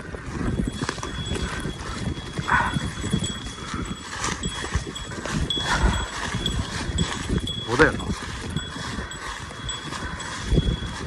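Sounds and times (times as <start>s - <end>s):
footsteps on muddy rocky trail: 0.0s - 11.0s
small bell tinkling: 0.4s - 11.0s.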